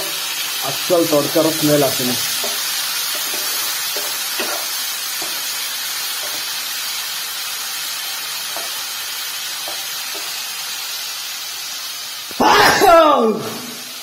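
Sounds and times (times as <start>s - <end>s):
masala sizzling in oil: 0.0s - 14.0s
wooden spatula scraping pan: 2.4s - 5.4s.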